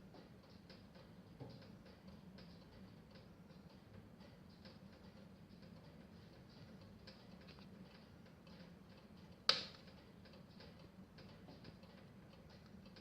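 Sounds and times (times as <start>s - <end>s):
wood fire crackling: 4.5s - 13.0s.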